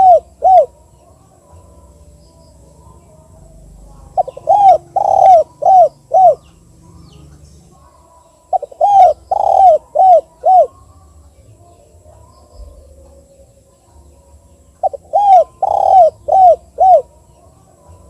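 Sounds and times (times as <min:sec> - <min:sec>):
dove cooing: 0:00.0 - 0:02.1, 0:02.8 - 0:07.2, 0:08.5 - 0:10.9, 0:14.7 - 0:18.0.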